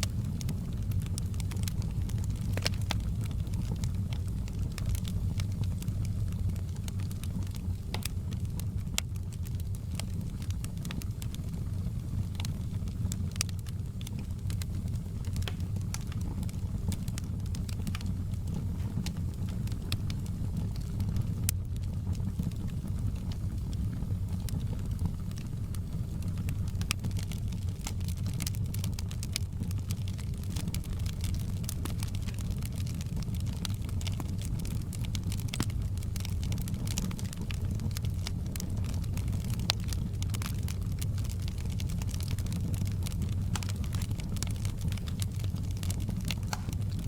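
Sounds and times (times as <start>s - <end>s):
campfire crackling and popping: 0.0s - 47.0s.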